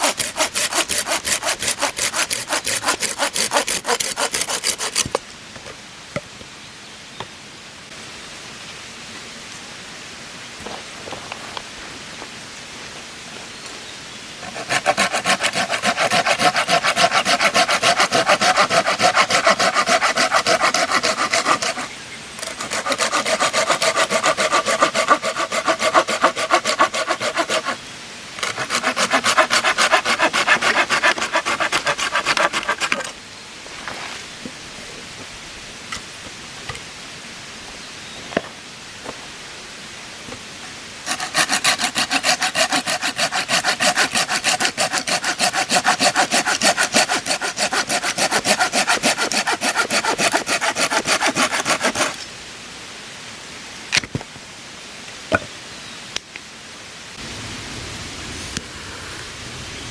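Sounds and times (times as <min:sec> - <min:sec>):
hand saw cutting wood: 0:00.0 - 0:05.2, 0:14.4 - 0:27.8, 0:28.4 - 0:33.2, 0:41.0 - 0:52.3.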